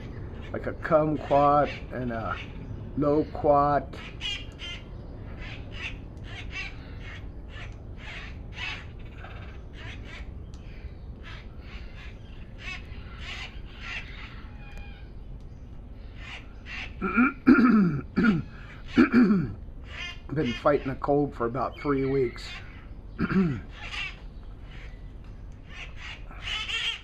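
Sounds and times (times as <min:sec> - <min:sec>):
parrots squawking: 0:00.0 - 0:15.1, 0:16.1 - 0:27.0
person clearing throat: 0:17.0 - 0:19.6, 0:23.2 - 0:23.7.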